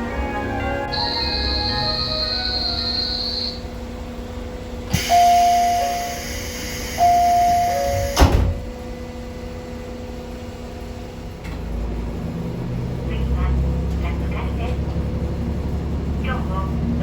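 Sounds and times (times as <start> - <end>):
two-note door chime: 0.0 - 3.6, 7.0 - 8.2
railcar hum: 0.0 - 17.0
hiss: 4.9 - 8.6.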